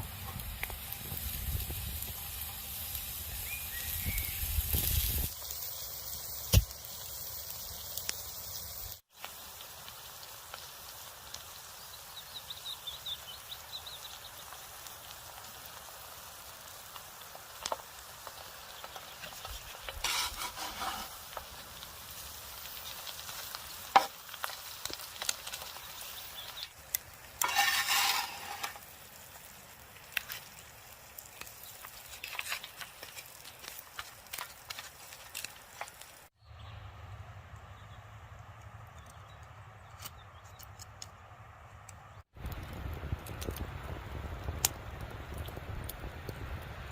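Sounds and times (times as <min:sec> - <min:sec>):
food sizzling in a pan: 0:00.0 - 0:36.4.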